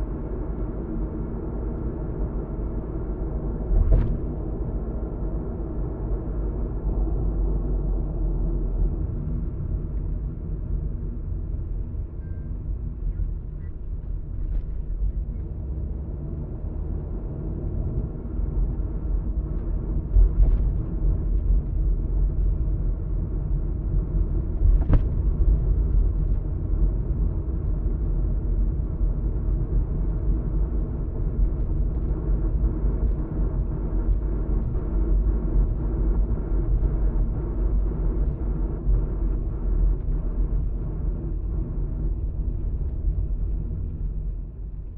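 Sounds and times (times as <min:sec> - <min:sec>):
road and engine rumble in car: 0:00.0 - 0:44.9.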